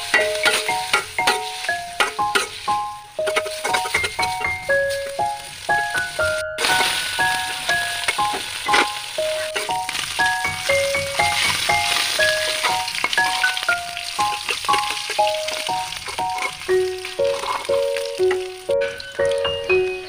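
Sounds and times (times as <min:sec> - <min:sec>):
metal spoon stirring in wok: 0:00.0 - 0:04.6, 0:06.7 - 0:17.7
chicken skin sizzling in oil: 0:00.0 - 0:20.0
simple background melody: 0:00.0 - 0:20.0.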